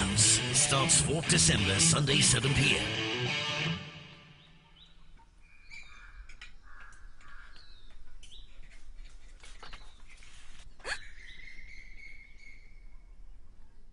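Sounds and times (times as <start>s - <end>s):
birds chirping: 4.1s - 13.9s.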